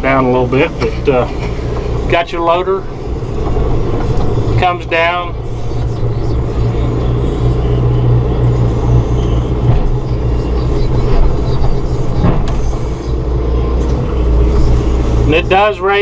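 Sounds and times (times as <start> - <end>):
tractor diesel engine idling: 0.0 - 16.0
loader hydraulics: 2.8 - 15.4.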